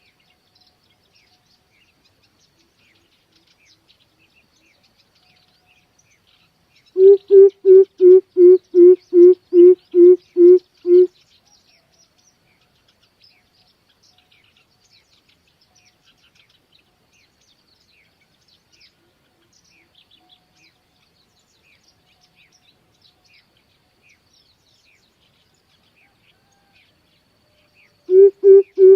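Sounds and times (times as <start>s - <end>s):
small birds chirping: 0.0s - 26.7s, 27.3s - 28.9s
coucal deep hooting call: 7.0s - 11.1s, 28.1s - 28.9s.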